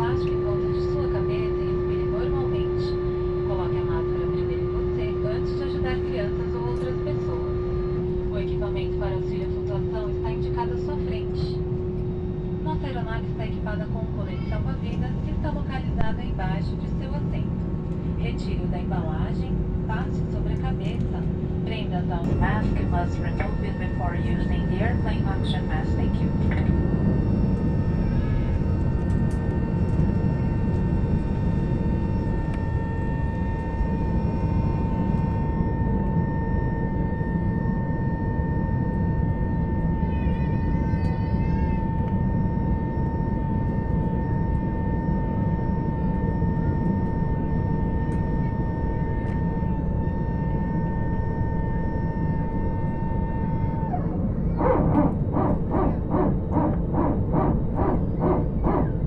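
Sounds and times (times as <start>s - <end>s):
jet engine whine: 0.0s - 59.0s
low cabin rumble: 0.0s - 59.0s
rapid pulsing: 53.7s - 59.0s.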